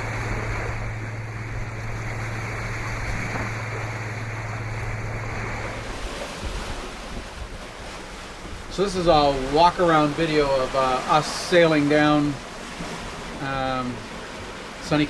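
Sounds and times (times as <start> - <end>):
wind noise: 0.0 - 10.8
steady low hum: 0.0 - 15.0
water rushing past hulls: 0.0 - 15.0.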